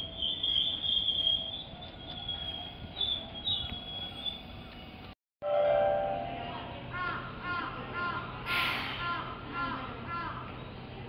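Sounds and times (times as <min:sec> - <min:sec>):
train brakes squealing: 0:00.0 - 0:05.0.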